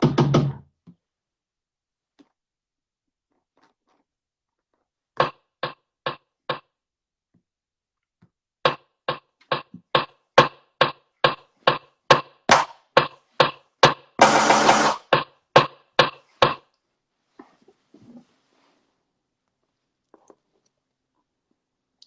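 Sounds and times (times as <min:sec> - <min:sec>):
sharp rhythmic knocking: 0:09.1 - 0:16.6.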